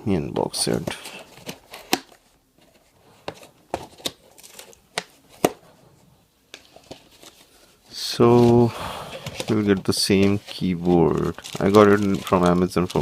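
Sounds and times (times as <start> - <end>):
packaging tearing and crinkling: 10.3 - 13.0
sharp packaging clicks: 11.2 - 13.0.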